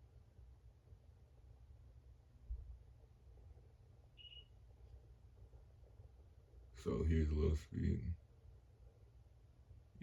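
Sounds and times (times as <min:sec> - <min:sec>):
faint low hum: 0:00.0 - 0:10.0
faint high-pitched beep: 0:04.1 - 0:04.6.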